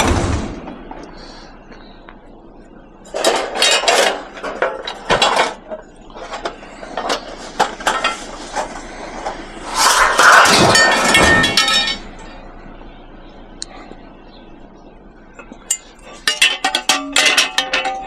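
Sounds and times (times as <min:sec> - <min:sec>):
scrap metal clattering and clanking: 0:03.0 - 0:12.3, 0:15.4 - 0:18.0.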